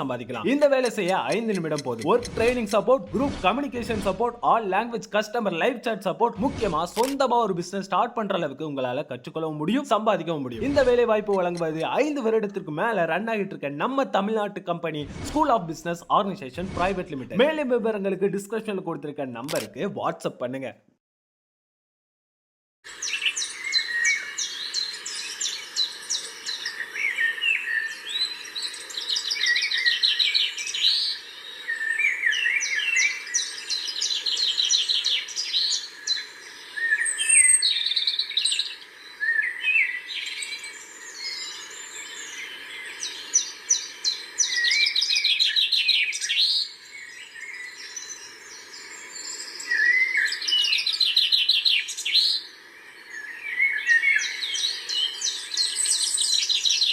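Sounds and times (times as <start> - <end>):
birds trilling and chirping: 0.0 - 7.1, 10.4 - 12.4.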